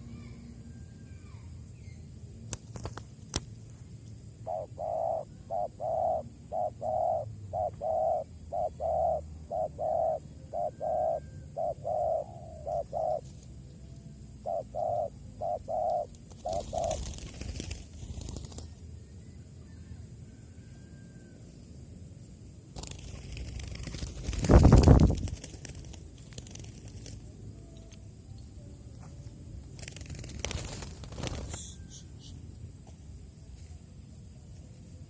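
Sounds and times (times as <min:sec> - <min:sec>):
dove cooing: 0:04.4 - 0:13.3, 0:14.2 - 0:17.4.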